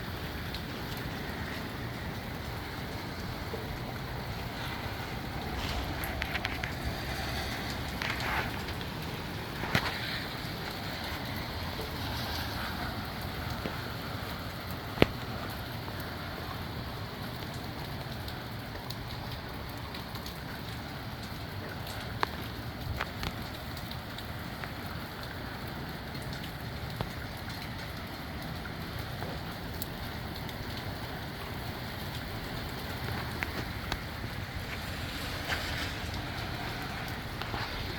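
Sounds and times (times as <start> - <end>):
gusty wind: 0.0 - 17.2, 30.0 - 37.9
heavy rain: 0.0 - 37.9.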